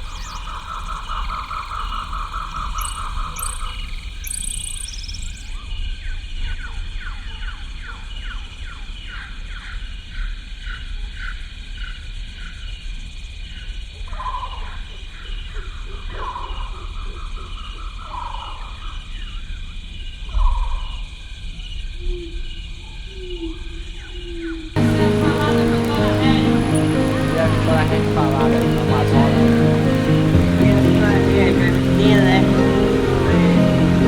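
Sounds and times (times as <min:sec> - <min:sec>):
insect trill: 0:00.0 - 0:05.6, 0:24.8 - 0:34.0.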